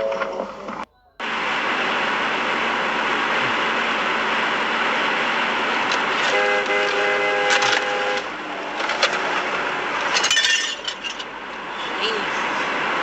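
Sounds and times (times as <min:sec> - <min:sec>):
car horn: 0:00.0 - 0:02.1, 0:05.9 - 0:10.8
car road and engine noise: 0:00.0 - 0:13.0.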